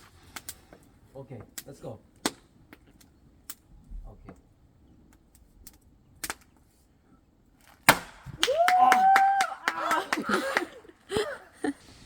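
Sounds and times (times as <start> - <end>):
axe striking log: 7.8 - 8.3
long whooping cry: 8.4 - 11.4.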